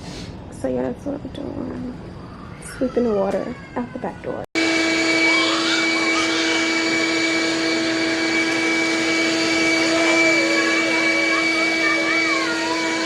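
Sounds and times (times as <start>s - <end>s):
vacuum cleaner running: 2.8s - 13.0s.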